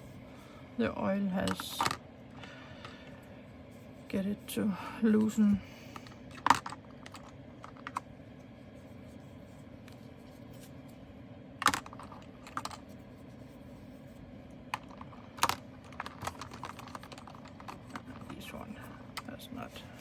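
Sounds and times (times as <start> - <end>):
plastic bottles clicking and knocking: 14.8 - 18.4.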